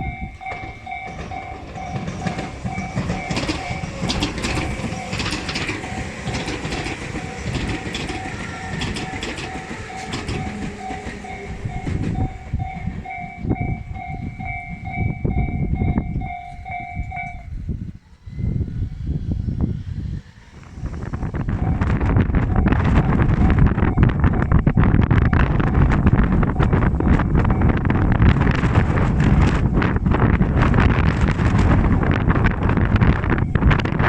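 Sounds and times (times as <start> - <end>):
level-crossing bell ringing: 0.0 - 17.6
train wheels clicking over rail joints: 0.0 - 17.6
wind buffeting microphone: 0.0 - 34.0.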